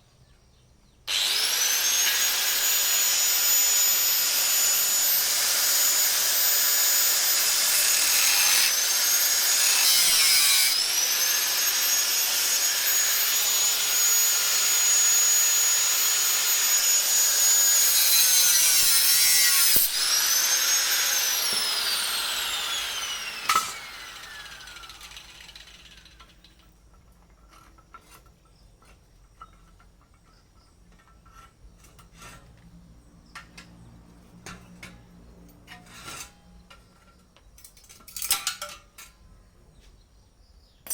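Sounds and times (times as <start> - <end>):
angle grinder whining: 1.1 - 26.4.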